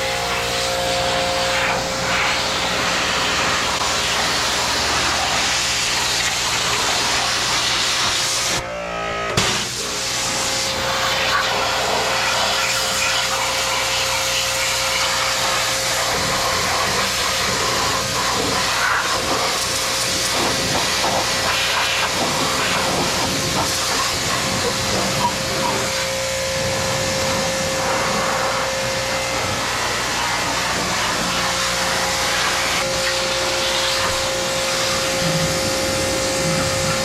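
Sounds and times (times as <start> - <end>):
high-pressure spray hissing: 0.0 - 8.6, 9.4 - 37.0
steady hum: 15.7 - 37.0.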